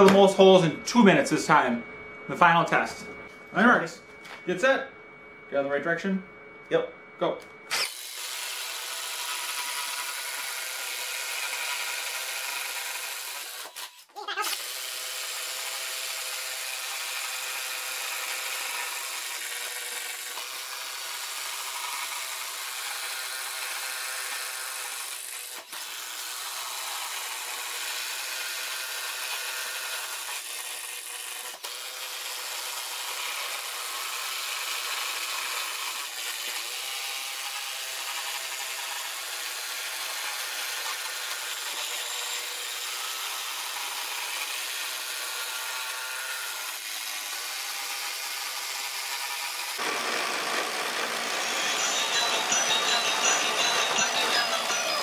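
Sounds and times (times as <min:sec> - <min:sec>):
impact drivers boring through wood: 0:07.7 - 0:55.0.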